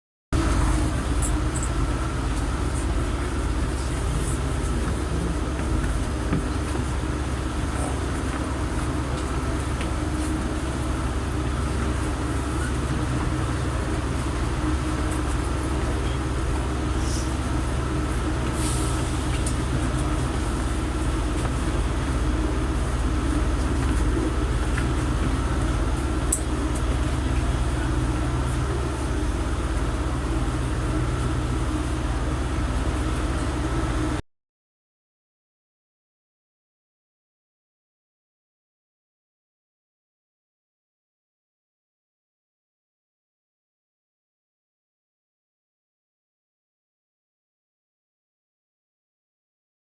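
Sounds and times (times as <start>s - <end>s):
train rumbling: 0.4s - 34.2s.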